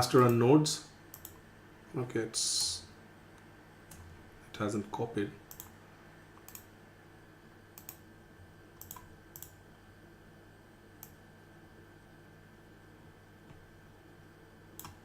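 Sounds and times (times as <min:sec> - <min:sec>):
faint electrical hum: 0:00.0 - 0:15.0
computer input clicks: 0:01.1 - 0:01.4, 0:05.5 - 0:05.7, 0:07.8 - 0:08.0, 0:08.8 - 0:09.6, 0:14.8 - 0:15.0.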